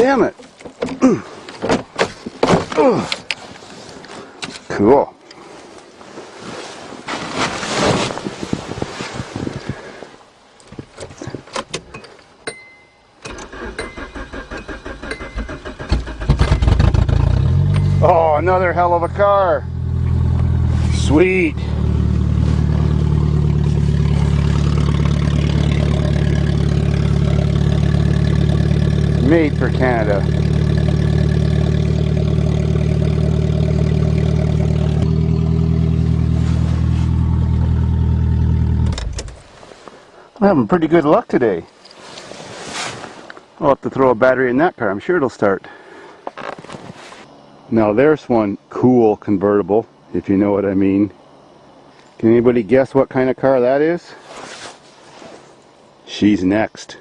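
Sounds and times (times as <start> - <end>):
dashboard chime: 12.5 - 13.1
car starter cranking: 13.2 - 18.0, 22.9 - 36.3, 37.1 - 39.4
car engine running: 15.8 - 39.4.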